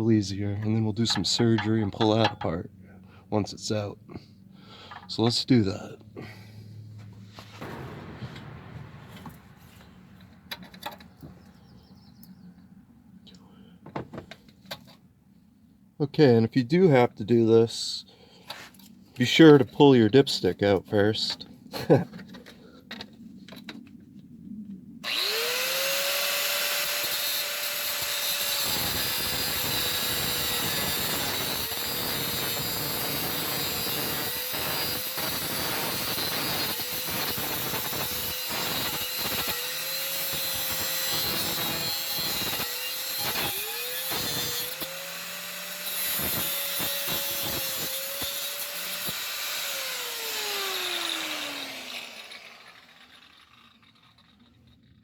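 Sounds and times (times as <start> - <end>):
die grinder cutting steel: 25.0 - 54.5.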